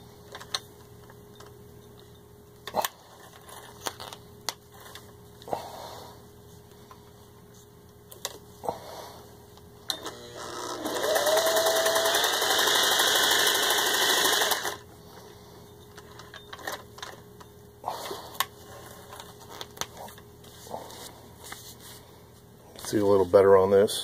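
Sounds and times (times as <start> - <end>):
sewing machine stitching: 10.1 - 14.8.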